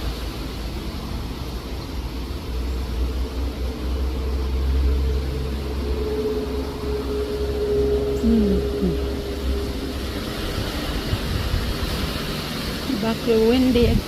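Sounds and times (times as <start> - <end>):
wind buffeting microphone: 5.6 - 14.0.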